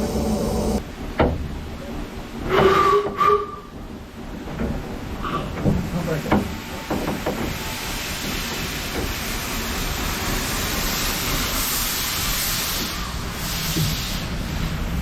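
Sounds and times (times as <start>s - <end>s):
steam hissing: 0.0s - 0.8s, 5.3s - 15.0s
train rumbling: 0.0s - 15.0s.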